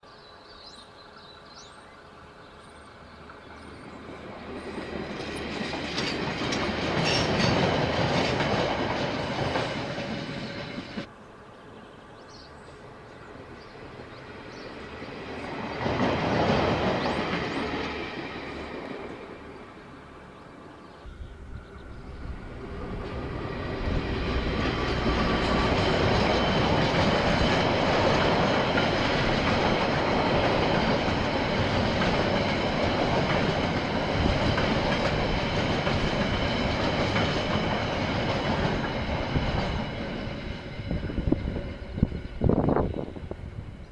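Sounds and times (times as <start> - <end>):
train wheels clattering: 3.3 - 11.1, 21.1 - 43.1.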